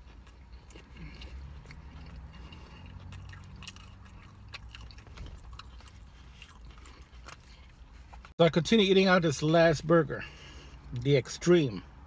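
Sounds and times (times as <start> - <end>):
man chewing with wet smacking: 0.0 - 8.4.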